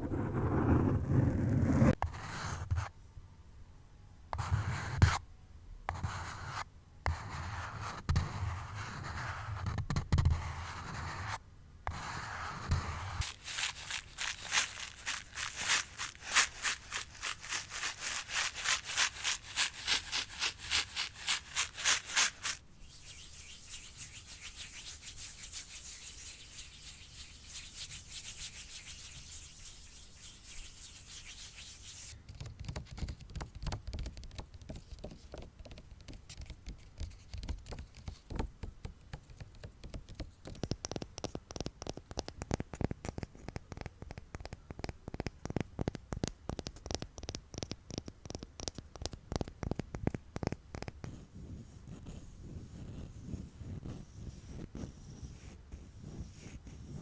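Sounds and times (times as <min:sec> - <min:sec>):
rhythmic scratching strokes: 0:13.2 - 0:32.1
soft hiss of rubbing: 0:13.2 - 0:32.2
soft rapid tapping: 0:13.2 - 0:51.0.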